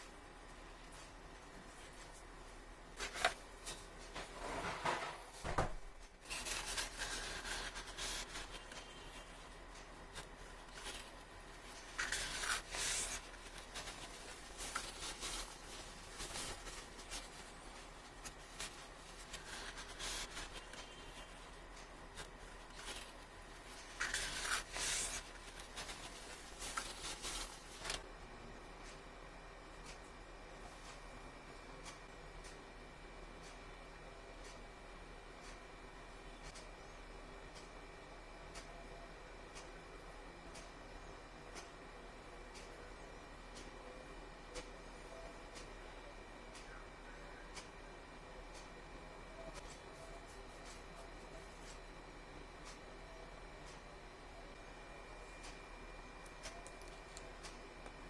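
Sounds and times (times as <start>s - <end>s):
packaging rubbing and sliding: 6.2s - 9.4s, 10.1s - 28.0s.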